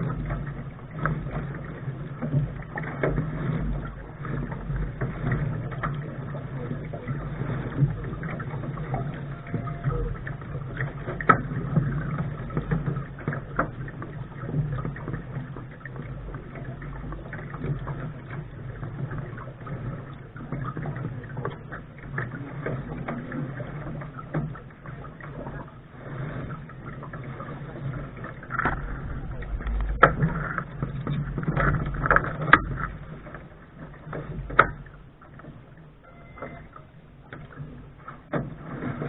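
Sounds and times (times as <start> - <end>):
water rushing along a hull: 0.0 - 39.0
low rumble: 28.3 - 33.3.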